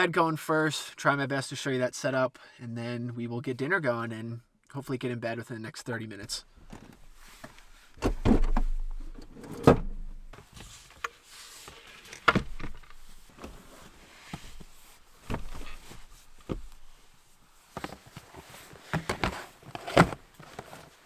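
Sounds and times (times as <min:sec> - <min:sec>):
bedding rustling: 0:12.5 - 0:21.0.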